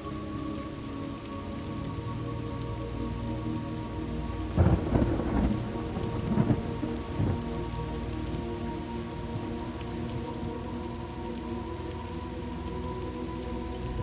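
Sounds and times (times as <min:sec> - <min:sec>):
steady rain: 0:00.0 - 0:14.0
crackling thunder: 0:04.5 - 0:07.9.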